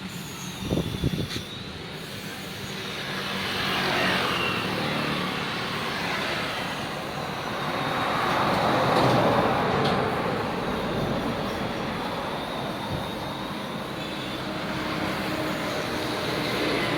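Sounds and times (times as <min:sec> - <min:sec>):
cut-off saw engine running: 0:00.0 - 0:16.9.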